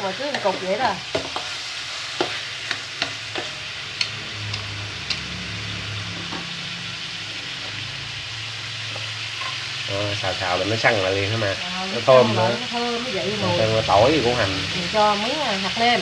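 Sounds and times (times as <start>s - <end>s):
meat sizzling in hot oil: 0.0s - 16.0s
utensil clicking against pan: 2.2s - 5.4s.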